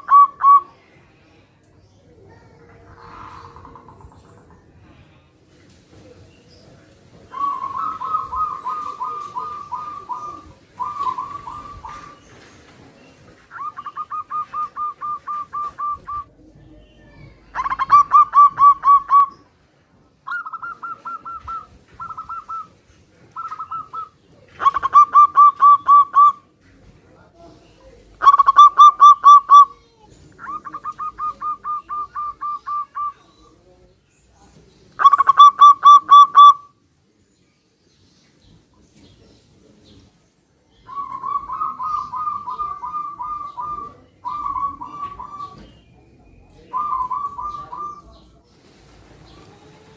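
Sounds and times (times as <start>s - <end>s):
doves cooing: 0.0s - 0.8s, 2.6s - 4.9s, 7.3s - 19.5s, 20.2s - 26.6s, 27.9s - 33.6s, 35.0s - 36.7s, 40.8s - 49.9s.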